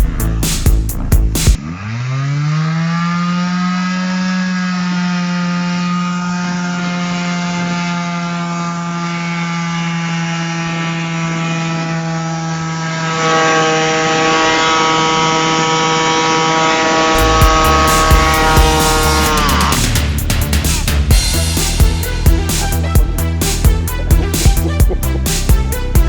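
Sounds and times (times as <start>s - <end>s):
small motor running: 1.6s - 20.4s.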